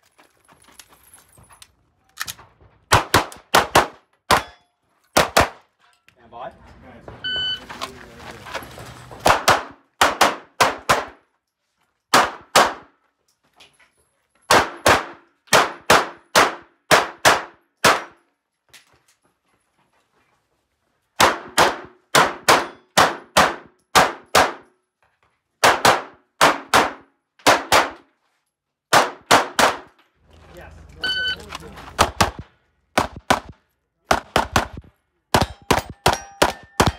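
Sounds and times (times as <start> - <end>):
pistol shots with metallic ring: 3.0 - 5.5, 21.3 - 24.7, 35.3 - 36.9.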